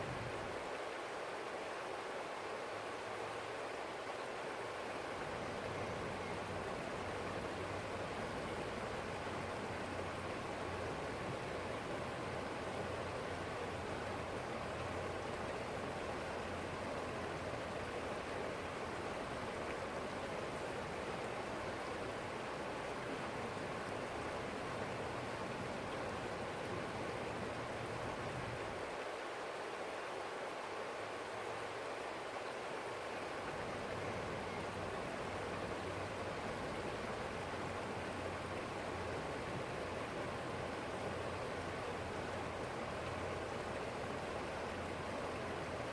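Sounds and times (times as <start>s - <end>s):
stream flowing over rocks: 0.0s - 45.9s.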